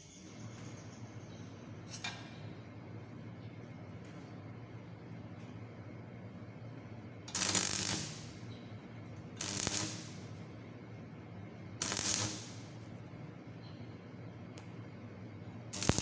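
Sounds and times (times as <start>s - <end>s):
welding arc crackling hiss: 7.3s - 8.4s, 9.4s - 10.4s, 11.8s - 12.8s, 15.8s - 16.0s.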